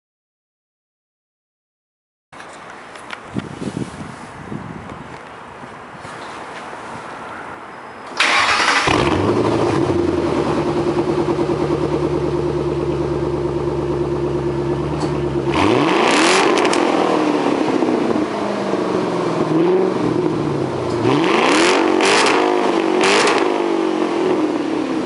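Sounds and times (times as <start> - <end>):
car engine starting: 8.1 - 25.0
car engine idling: 8.2 - 15.8
car engine revving: 8.2 - 25.0.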